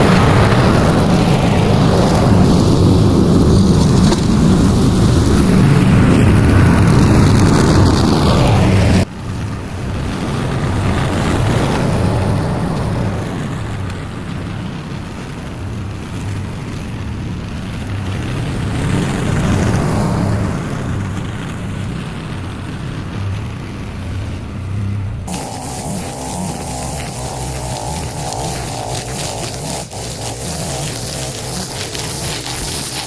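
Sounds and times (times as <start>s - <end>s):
lawn mower engine running: 22.5s - 33.0s.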